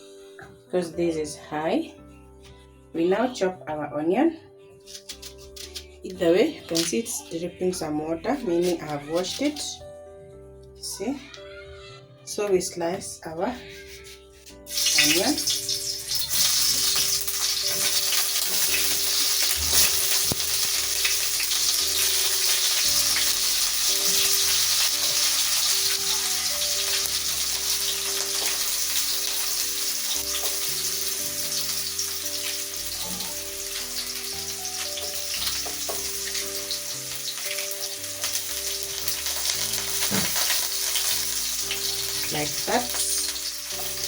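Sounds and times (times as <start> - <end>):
oil sizzling in a pan: 13.6 - 44.0.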